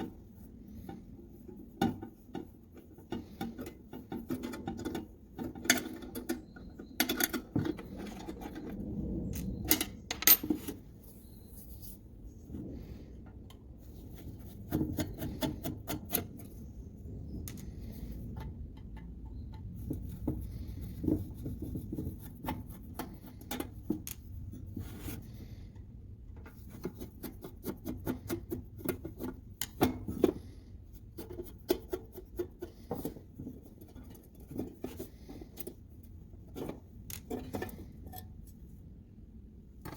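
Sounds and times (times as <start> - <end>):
rubbing or scraping: 19.8 - 25.7.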